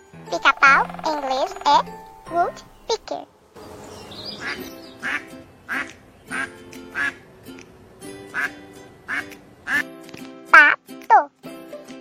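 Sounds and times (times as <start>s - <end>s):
light background music: 0.0s - 3.1s, 3.8s - 12.0s
duck quacking: 0.3s - 3.0s, 4.4s - 7.2s, 8.3s - 9.9s.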